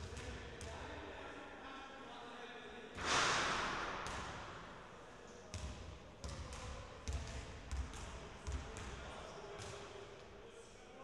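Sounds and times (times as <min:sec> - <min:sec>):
loud burst of noise: 0:03.0 - 0:04.0
basketball bouncing on court: 0:05.5 - 0:09.0.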